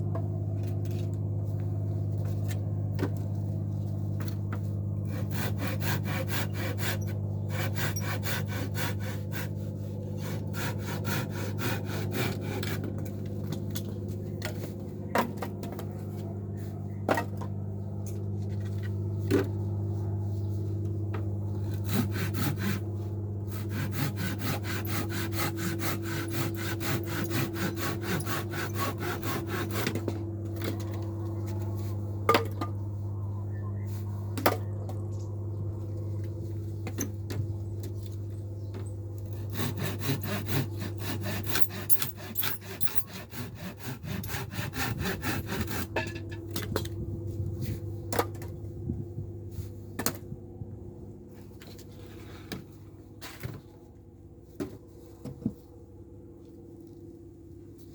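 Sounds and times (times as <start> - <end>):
steady low hum: 0.0 - 57.9
saw cutting wood: 5.0 - 15.8, 21.5 - 31.6, 39.2 - 46.3.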